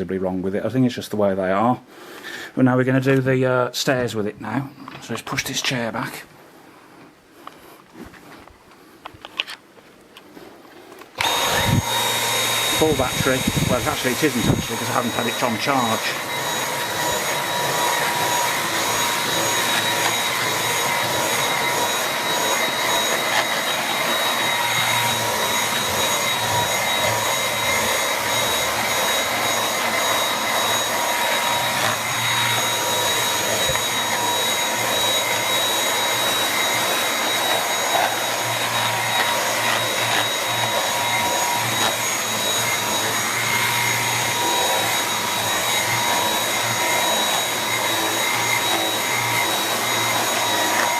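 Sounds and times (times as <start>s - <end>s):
vacuum cleaner motor whine: 11.0s - 50.9s.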